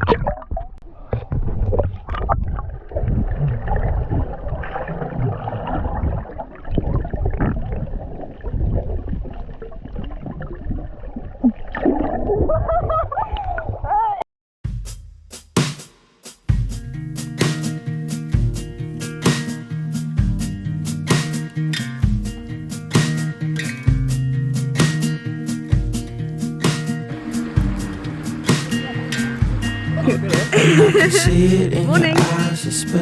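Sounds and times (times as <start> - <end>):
low rumbling splashes: 0.0 - 13.7, 27.1 - 32.4
water sloshing and gurgling: 0.0 - 13.9, 27.1 - 32.2.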